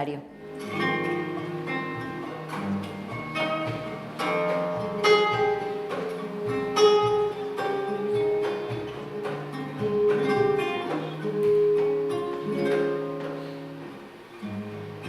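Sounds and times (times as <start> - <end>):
acoustic guitar plucked notes: 0.3 - 15.0.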